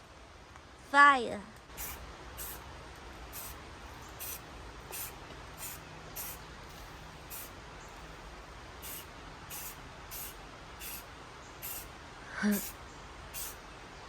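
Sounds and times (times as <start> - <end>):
spray paint can hissing: 1.7 - 2.6, 3.3 - 7.6, 8.8 - 11.9, 12.5 - 13.6.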